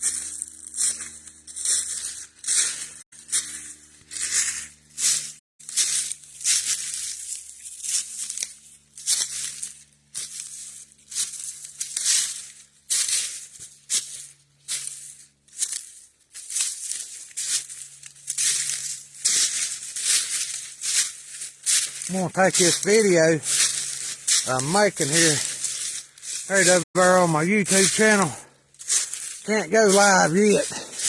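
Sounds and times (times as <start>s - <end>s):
footsteps crunching dry leaves: 0.0s - 31.0s.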